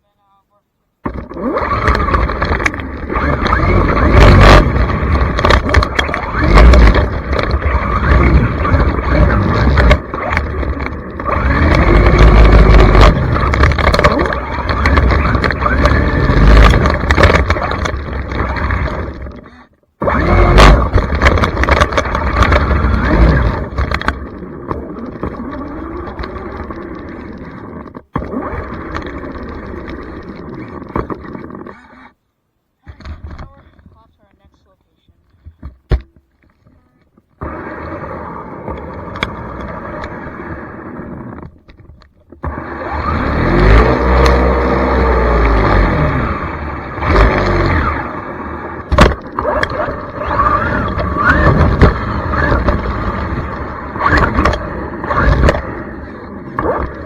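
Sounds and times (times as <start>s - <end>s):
loud rough noise: 1.0s - 32.1s, 42.4s - 57.0s
electric motor whining: 1.1s - 31.8s, 42.4s - 57.0s.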